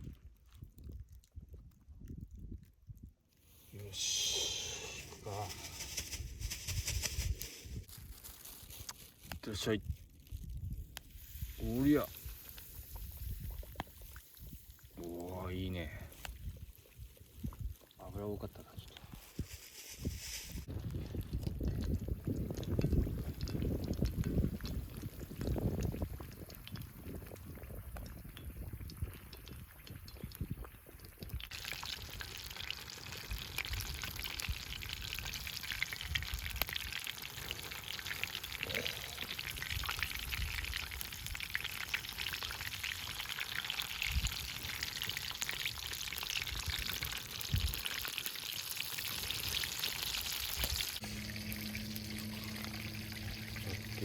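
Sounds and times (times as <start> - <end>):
chicken deep-frying in oil: 7.8 - 54.0
steady low hum: 51.0 - 54.0.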